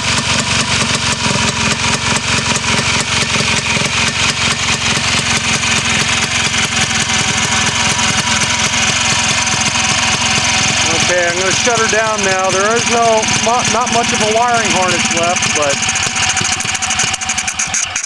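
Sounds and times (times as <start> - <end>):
two-stroke snowmobile engine running: 0.0 - 18.0.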